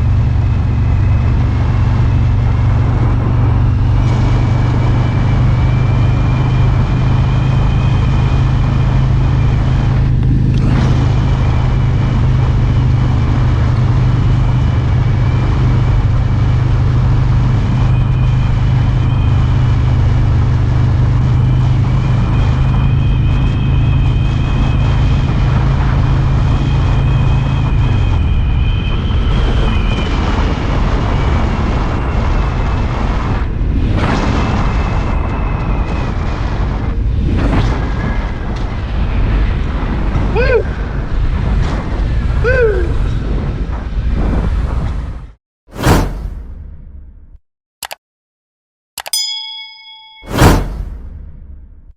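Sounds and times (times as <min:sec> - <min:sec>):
motorcycle engine running: 0:00.0 - 0:23.3
wind and road noise: 0:00.0 - 0:48.0, 0:49.6 - 0:51.9.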